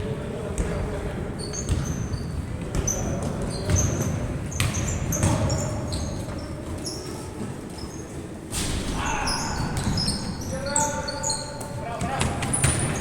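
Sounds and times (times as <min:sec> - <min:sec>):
shoes squeaking on court floor: 0:00.6 - 0:08.5, 0:09.2 - 0:13.0
ball bouncing: 0:03.6 - 0:05.6.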